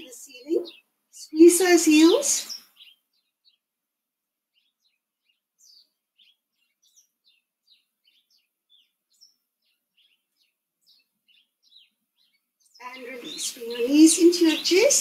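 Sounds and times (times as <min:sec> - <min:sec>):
faint birdsong chirps: 0:00.0 - 0:15.0.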